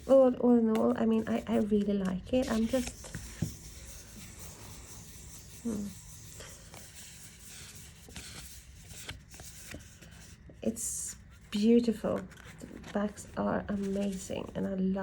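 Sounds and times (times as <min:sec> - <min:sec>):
cards rubbing and ticking: 0:00.0 - 0:10.6, 0:11.2 - 0:14.7
woman humming mm: 0:05.6 - 0:06.0.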